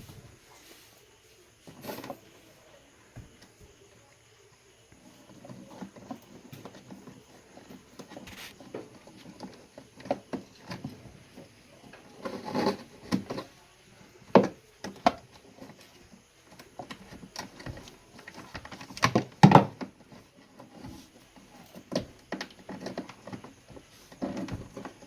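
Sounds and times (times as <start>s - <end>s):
hands and tools clattering: 14.2s - 25.0s.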